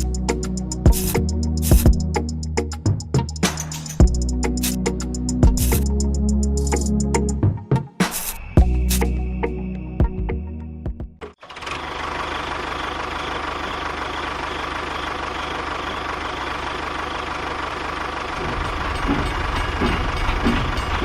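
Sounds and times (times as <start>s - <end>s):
low rumble with knocks: 18.4s - 21.0s.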